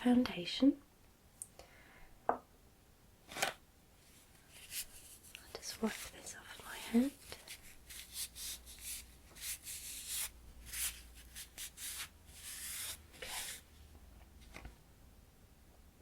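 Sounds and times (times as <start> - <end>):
soft rubbing on skin: 4.0 - 13.8.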